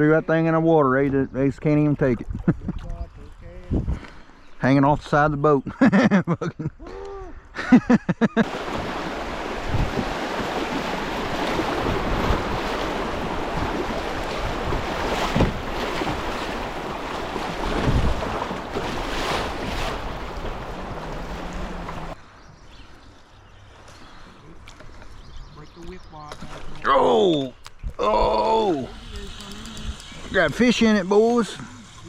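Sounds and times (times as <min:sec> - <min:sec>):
rushing river water: 0:08.4 - 0:22.2.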